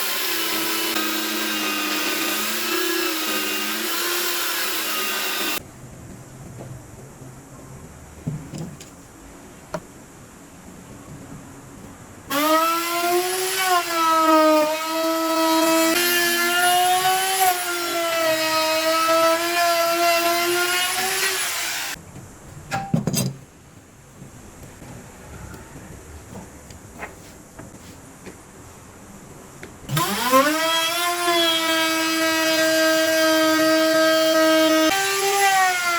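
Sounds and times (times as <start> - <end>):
power tool whining: 0.0 - 5.6, 29.9 - 35.9.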